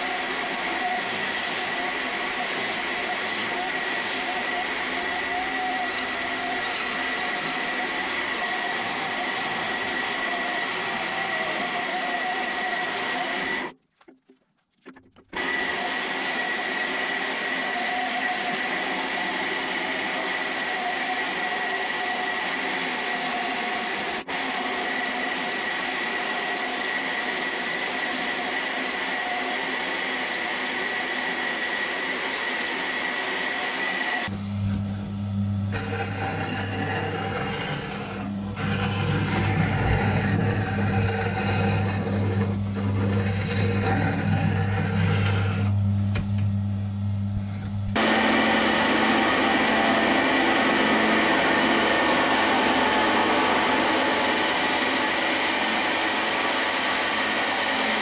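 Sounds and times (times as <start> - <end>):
wood lathe whining: 0.0 - 13.8, 14.8 - 46.5, 47.4 - 58.0
gouge shaving wood: 0.0 - 34.3, 35.7 - 45.8, 48.0 - 58.0.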